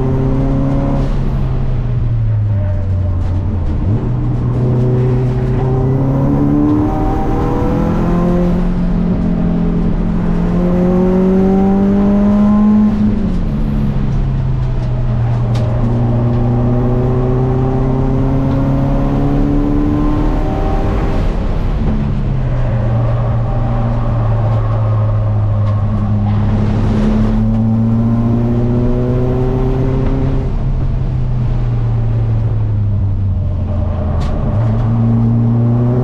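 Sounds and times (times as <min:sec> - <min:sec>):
car engine accelerating: 0:00.0 - 0:36.0.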